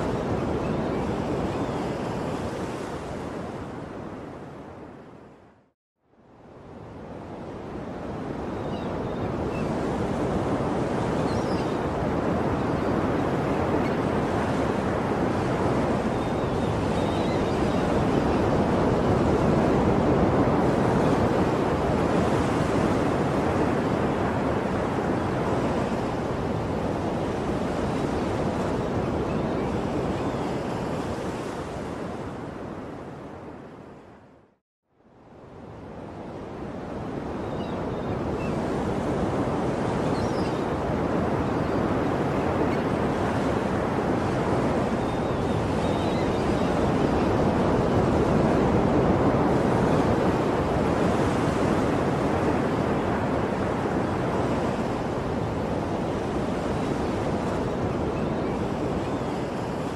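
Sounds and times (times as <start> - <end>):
ocean surf breaking waves: 36.3 - 59.9.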